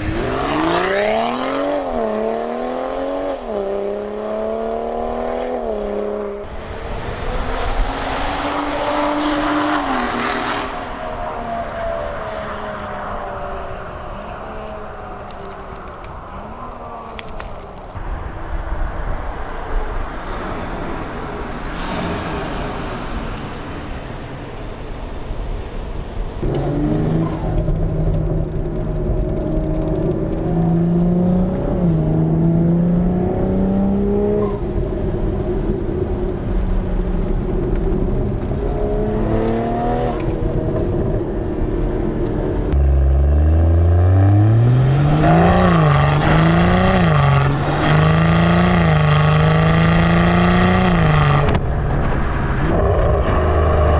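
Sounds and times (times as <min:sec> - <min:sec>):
car engine accelerating: 0:00.0 - 0:53.9
road noise: 0:00.0 - 0:53.9.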